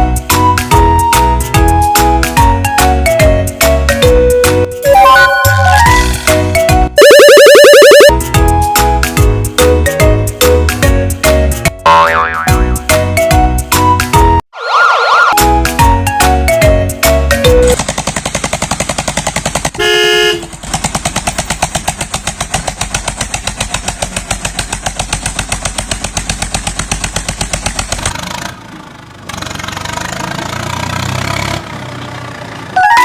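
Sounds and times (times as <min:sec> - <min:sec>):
toy horn honk: 0:19.8 - 0:20.5
toy vehicle engine chugging: 0:20.4 - 0:28.2.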